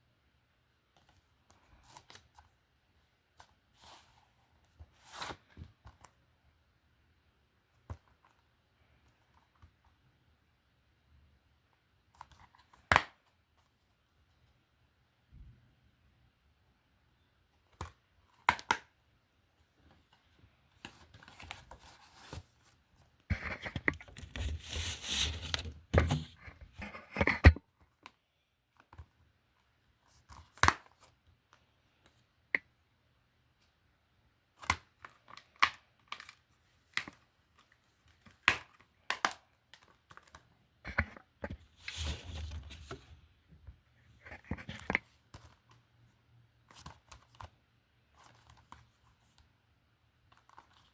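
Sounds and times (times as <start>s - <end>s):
crinkling and rustling: 19.8s - 28.1s, 34.6s - 45.9s, 50.2s - 50.9s.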